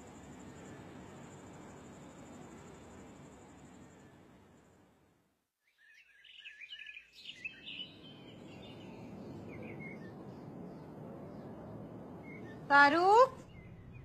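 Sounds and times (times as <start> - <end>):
steady outdoor hiss: 0.0 - 14.0
birds chirping: 5.6 - 14.0.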